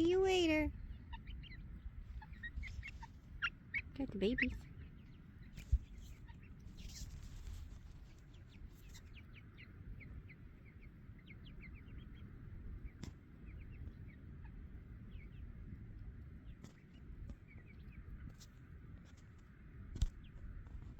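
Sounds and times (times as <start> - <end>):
baby poultry peeping: 0.0 - 18.6
low background rumble: 0.0 - 20.9.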